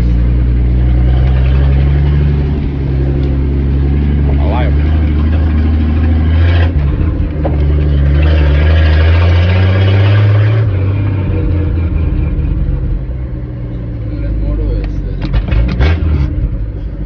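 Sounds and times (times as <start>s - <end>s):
truck engine driving: 0.0s - 17.0s.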